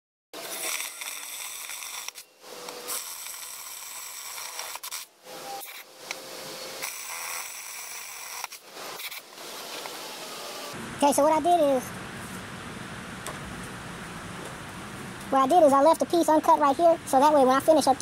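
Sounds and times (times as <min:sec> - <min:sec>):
power jigsaw cutting wood: 0:00.4 - 0:10.8.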